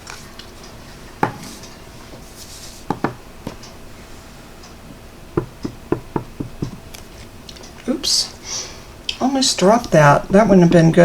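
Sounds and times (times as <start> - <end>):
stamp block tapping ink pad: 2.9 - 3.6, 5.4 - 6.9.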